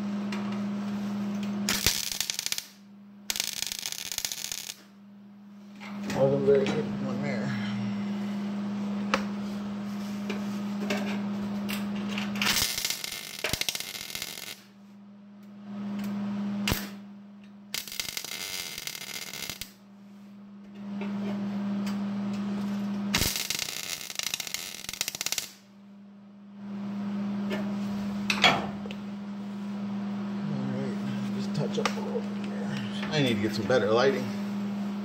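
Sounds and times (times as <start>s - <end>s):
steady low hum: 0.0s - 35.0s
welder crackling on sheet metal: 1.6s - 4.9s, 12.4s - 14.7s, 16.6s - 17.0s, 17.7s - 19.8s, 22.6s - 25.7s.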